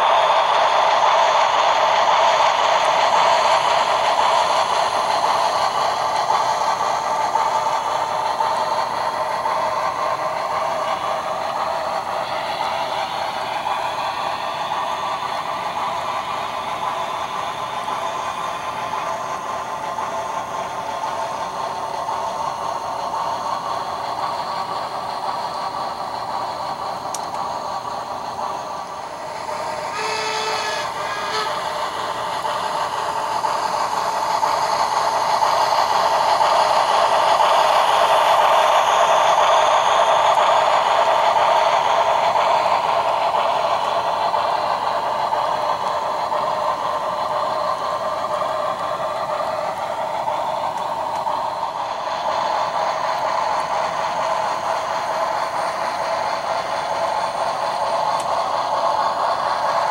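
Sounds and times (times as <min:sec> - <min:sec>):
mechanical steam hiss: 0:00.0 - 0:59.9
short steam whistle: 0:29.6 - 0:32.2.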